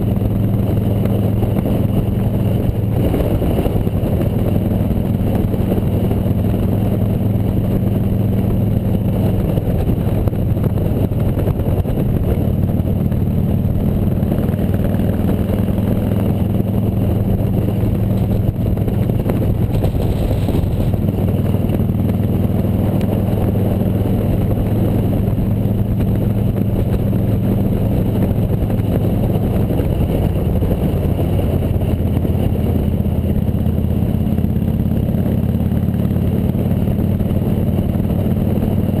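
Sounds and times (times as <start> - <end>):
motorcycle engine running: 0.0 - 39.0
road noise: 0.0 - 39.0
wind noise: 0.0 - 39.0.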